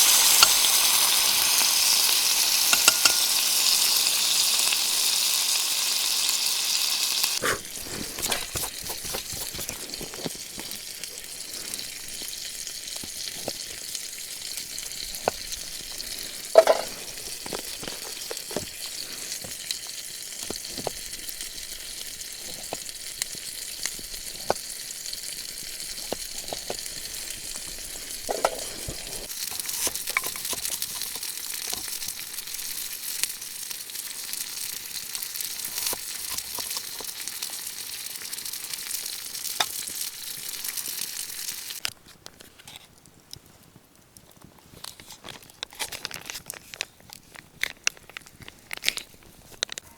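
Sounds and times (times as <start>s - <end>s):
food sizzling in a pan: 0.0s - 41.9s
pops and crackles: 7.4s - 32.6s, 35.4s - 49.9s.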